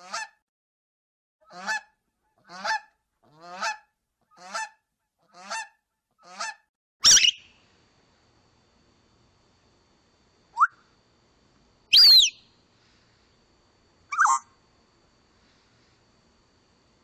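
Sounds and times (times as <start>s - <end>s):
bird calling: 7.0s - 7.5s, 11.9s - 12.5s, 14.1s - 14.5s.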